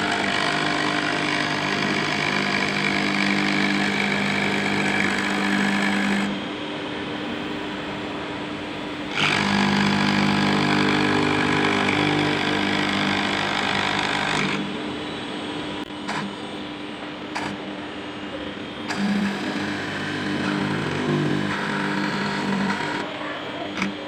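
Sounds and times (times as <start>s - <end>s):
milling machine cutting acrylic: 0.0s - 6.4s, 9.1s - 14.7s, 16.0s - 16.4s, 18.8s - 24.0s.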